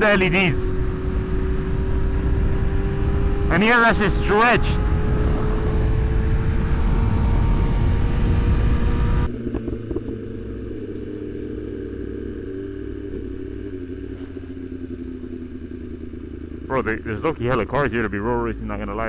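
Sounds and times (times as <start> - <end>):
motorcycle engine hum: 0.0 - 19.0
wind rush: 0.8 - 8.8.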